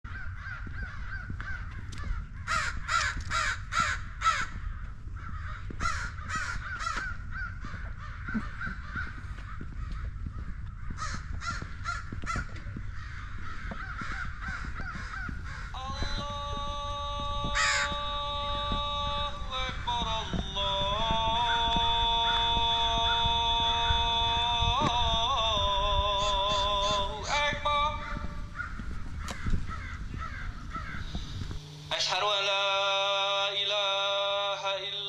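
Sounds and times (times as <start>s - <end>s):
crows cawing: 0.1s - 32.4s
steady multi-pitch tone: 15.3s - 35.0s.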